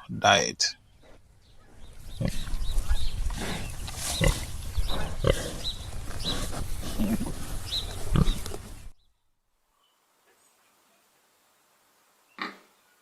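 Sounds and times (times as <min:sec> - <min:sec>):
pigs grunting: 0:01.0 - 0:08.8.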